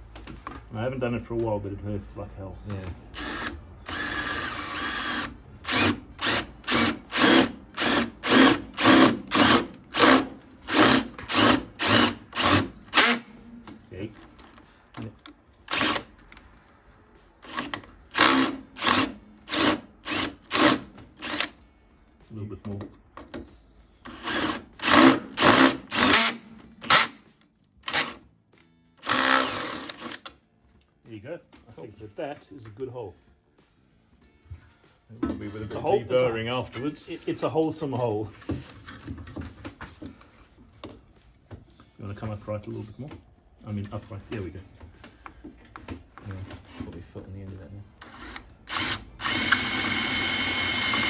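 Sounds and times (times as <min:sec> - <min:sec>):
power drill boring through steel: 0:03.2 - 0:13.3, 0:17.5 - 0:21.5, 0:24.1 - 0:27.1, 0:29.0 - 0:30.2, 0:48.0 - 0:51.0.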